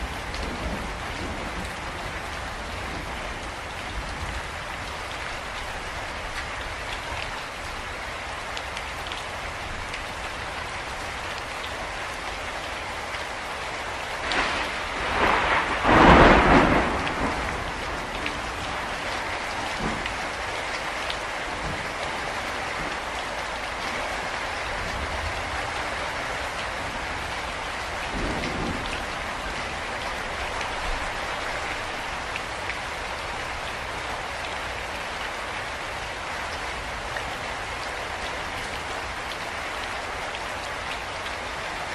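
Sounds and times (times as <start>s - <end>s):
steady rain falling: 0.0s - 41.9s
thunder crack and rumble: 0.1s - 4.4s, 14.2s - 20.4s, 26.5s - 31.2s.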